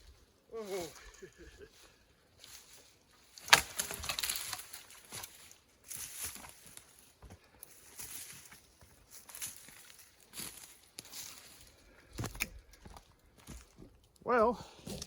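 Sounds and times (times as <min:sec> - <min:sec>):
brush crackling and rustling: 0:02.4 - 0:11.8
sharp woody crack: 0:03.4 - 0:04.2.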